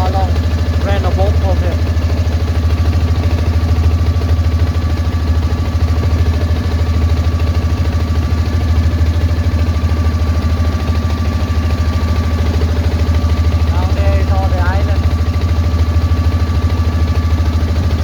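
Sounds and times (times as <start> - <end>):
boat engine throbbing: 0.0 - 18.0
thin steady whine: 5.1 - 17.7.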